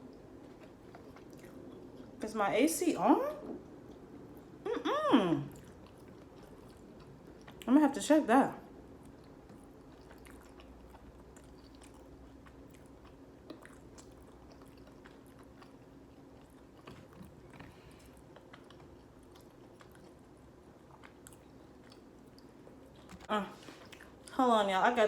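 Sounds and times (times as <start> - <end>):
wet chewing: 0.0 - 2.2, 5.5 - 7.7, 8.9 - 24.4
low steady hum: 0.0 - 25.0.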